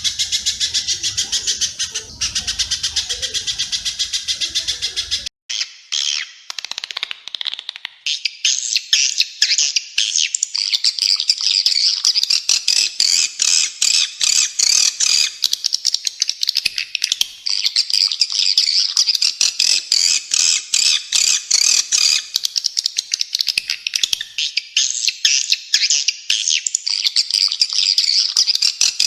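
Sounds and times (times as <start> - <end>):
rapid high bird chirps and chatter: 0.0 - 29.0.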